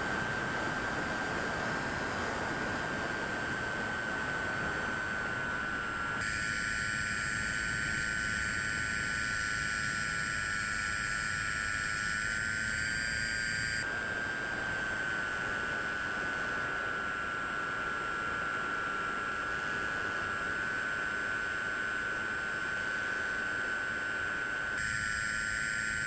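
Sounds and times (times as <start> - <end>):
model plane motor whining: 6.2 - 13.8, 24.8 - 26.0.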